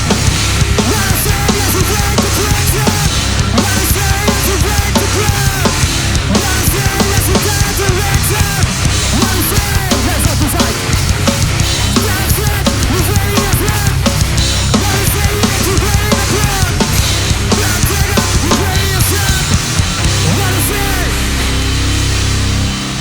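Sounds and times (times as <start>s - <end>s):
heavy band playing live: 0.0s - 23.0s.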